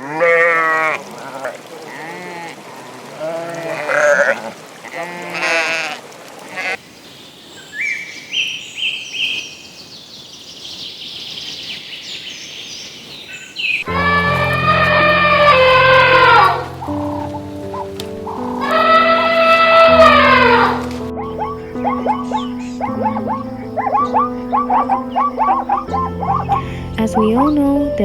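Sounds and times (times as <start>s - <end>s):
sheep bleating: 0.0s - 2.5s, 3.2s - 6.8s, 13.9s - 26.6s
high chirping tones: 13.8s - 28.0s
music: 13.9s - 28.0s.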